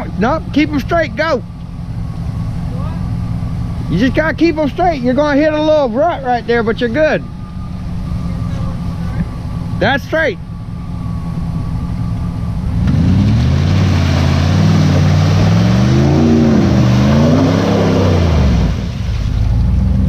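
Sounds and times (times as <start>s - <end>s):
car engine revving in mud: 11.8s - 20.0s.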